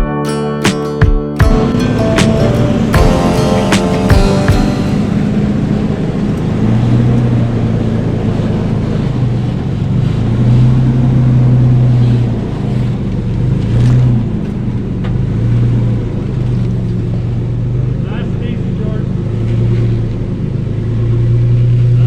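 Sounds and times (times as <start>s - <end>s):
off-road engine at low revs: 5.9s - 22.0s.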